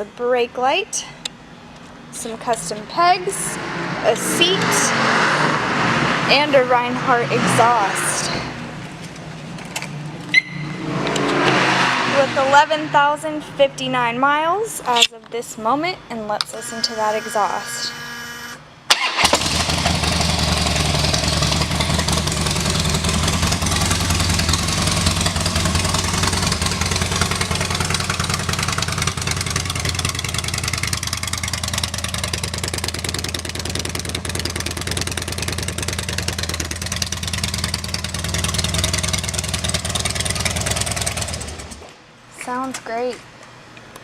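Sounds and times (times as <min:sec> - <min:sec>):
motorcycle engine running: 0:19.2 - 0:41.8.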